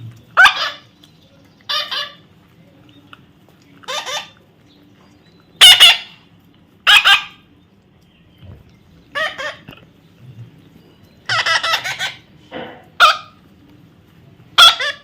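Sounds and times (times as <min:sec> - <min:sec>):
parrot squawking: 0:00.4 - 0:00.9, 0:01.7 - 0:02.2, 0:03.8 - 0:04.4, 0:05.6 - 0:06.2, 0:06.8 - 0:07.5, 0:09.1 - 0:09.8, 0:11.2 - 0:12.4, 0:13.0 - 0:13.4, 0:14.5 - 0:15.0.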